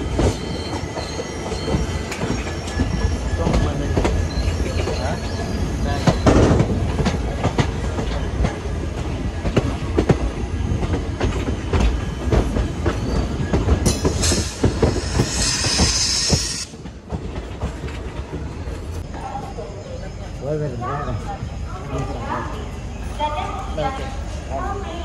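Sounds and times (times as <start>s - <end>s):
train rumbling along the track: 0.0s - 25.0s
high wheel squeal: 0.3s - 6.5s, 12.0s - 16.8s.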